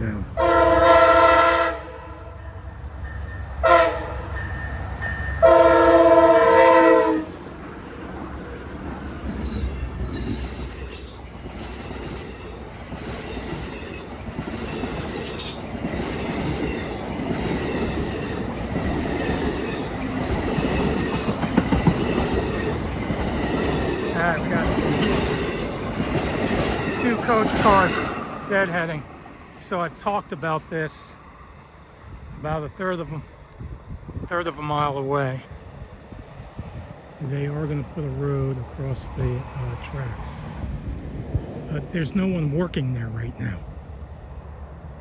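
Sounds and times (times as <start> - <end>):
train rumble: 0.0 - 45.0
train horn blasts: 0.4 - 2.6, 3.6 - 7.6
crossing signal bell: 2.2 - 6.0
train wheels clacking over rail joints: 6.5 - 29.0.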